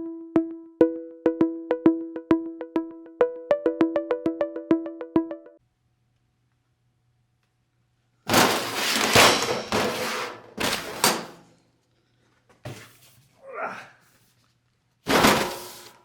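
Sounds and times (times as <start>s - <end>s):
box scraping and rustling: 8.3s - 11.5s, 15.1s - 16.0s.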